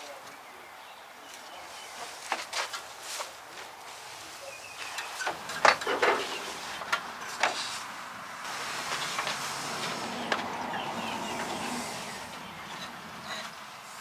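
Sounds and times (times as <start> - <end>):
short clunks and knocks: 5.0 - 7.7.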